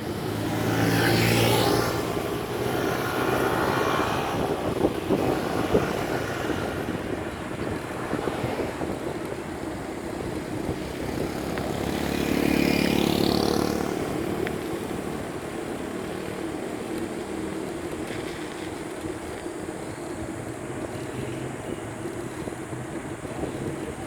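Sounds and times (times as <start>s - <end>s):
vehicle engine passing by: 0.0s - 16.4s
wind noise on microphone: 0.0s - 16.4s, 17.8s - 24.0s.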